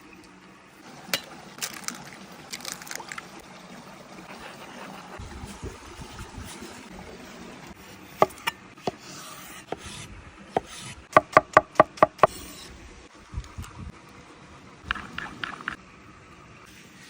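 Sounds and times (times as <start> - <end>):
knife chopping on wooden board: 8.2 - 10.0, 10.6 - 12.4.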